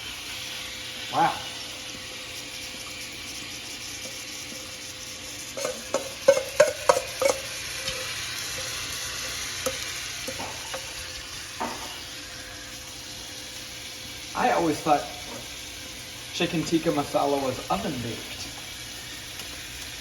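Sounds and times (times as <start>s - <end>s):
chicken sizzling in frying pan: 0.0s - 20.0s
utensil knocking against pan: 5.6s - 7.5s.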